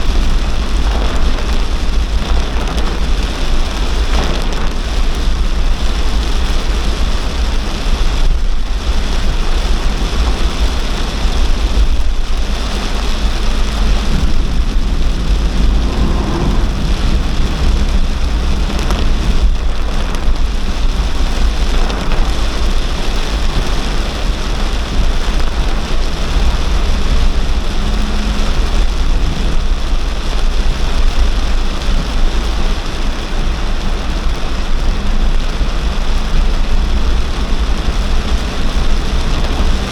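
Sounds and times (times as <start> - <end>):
deep rumble: 0.0 - 39.9
heavy rain pouring: 0.0 - 39.9.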